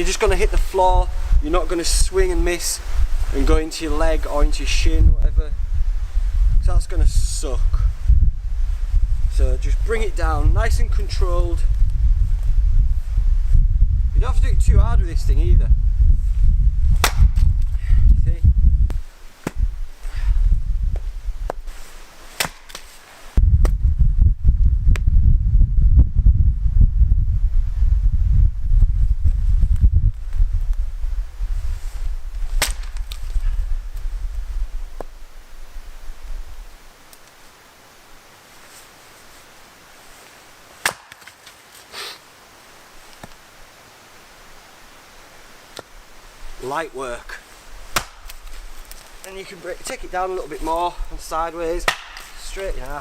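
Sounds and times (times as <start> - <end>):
wind buffeting microphone: 0.0 - 21.7, 23.4 - 36.9
axe chopping firewood: 17.0 - 17.5, 19.4 - 19.6, 22.3 - 22.9, 32.6 - 33.2, 40.8 - 41.5, 47.9 - 49.0, 51.8 - 52.4.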